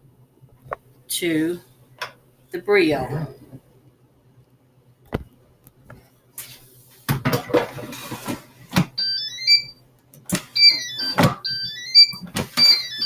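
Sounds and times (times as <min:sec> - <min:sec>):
electronic beep melodies: 0:09.0 - 0:09.7, 0:10.6 - 0:13.0.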